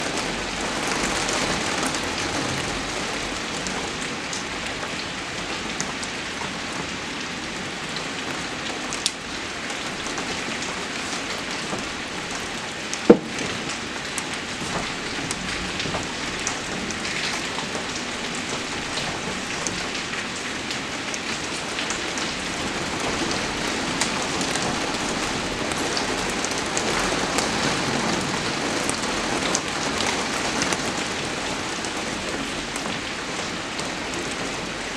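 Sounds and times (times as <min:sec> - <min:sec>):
steady rain: 0:00.0 - 0:34.9
sharp knock: 0:13.1 - 0:13.6.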